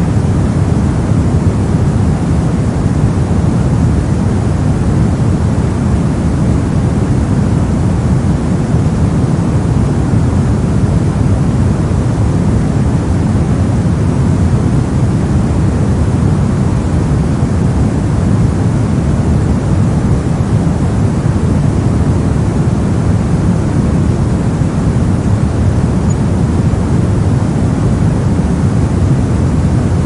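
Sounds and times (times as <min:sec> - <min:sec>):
brown noise rumbling hiss: 0:00.0 - 0:30.0.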